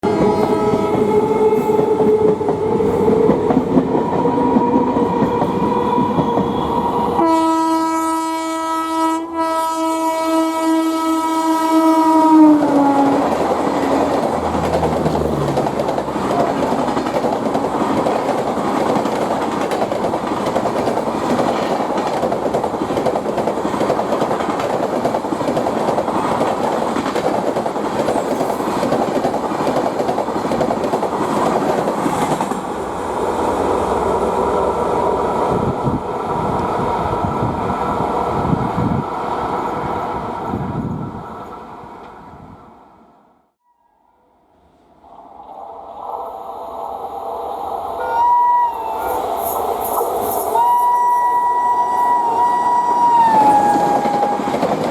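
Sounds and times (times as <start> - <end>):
train horn blast: 0.0 - 3.2, 5.9 - 13.4, 50.5 - 54.7
train wheels clattering on rails: 13.2 - 32.7, 53.2 - 54.9.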